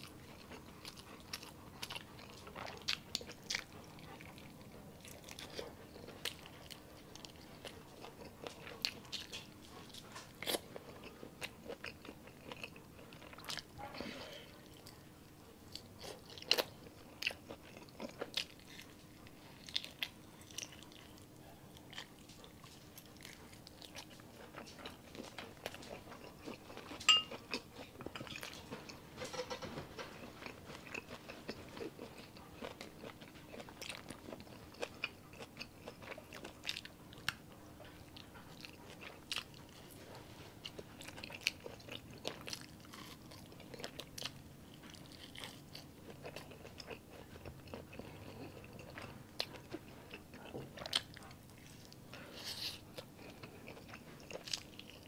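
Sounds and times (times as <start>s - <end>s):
wet chewing and crunching: 0.0s - 55.0s
ringing clink: 27.1s - 27.3s.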